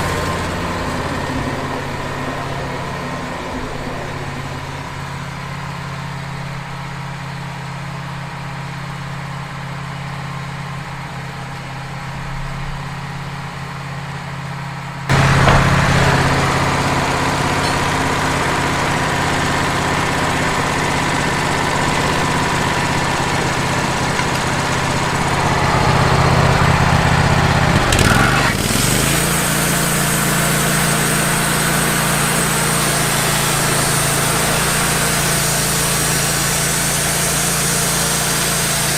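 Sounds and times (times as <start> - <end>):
sawmill engine running: 0.0 - 38.9
band saw cutting log: 15.1 - 38.9.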